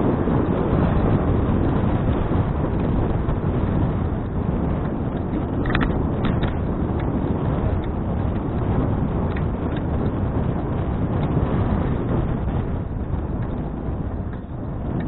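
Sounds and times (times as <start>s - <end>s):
wind buffeting microphone: 0.0s - 15.0s
light clicks and ticks: 2.7s - 11.5s, 13.1s - 15.0s.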